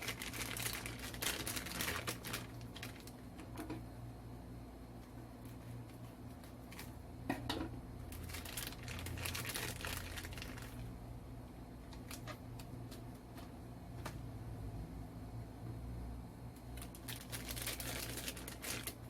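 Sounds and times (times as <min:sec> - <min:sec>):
packaging crinkling: 0:00.0 - 0:03.6, 0:08.1 - 0:10.9, 0:11.9 - 0:13.0, 0:16.8 - 0:19.0.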